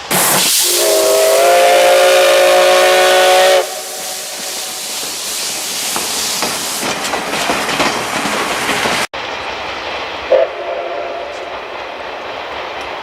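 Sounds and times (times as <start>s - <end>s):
steam train rushing by: 0.0s - 13.0s.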